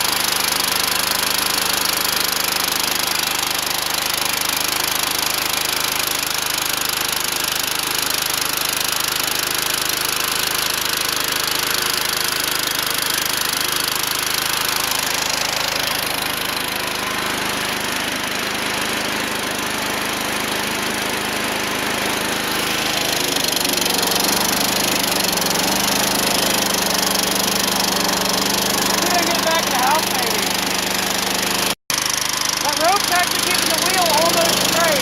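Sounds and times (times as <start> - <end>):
small tractor engine running: 0.0 - 35.0.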